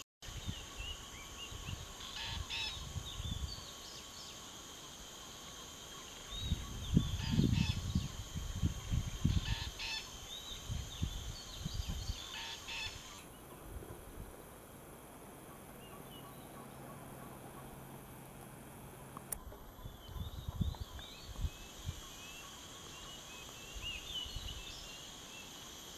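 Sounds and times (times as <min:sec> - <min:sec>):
steady high hum: 0:00.2 - 0:25.9
parakeet harsh calls: 0:02.2 - 0:02.7, 0:09.3 - 0:10.1, 0:12.3 - 0:13.2.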